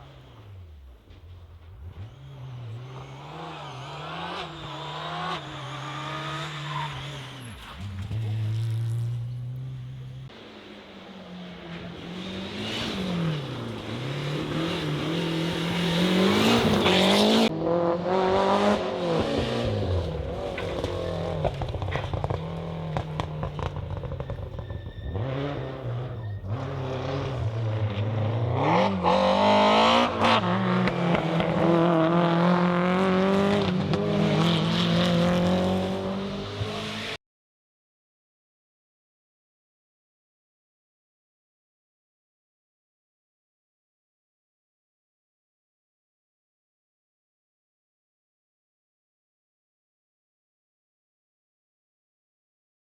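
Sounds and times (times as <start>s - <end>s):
rally car engines revving: 0.0s - 37.2s.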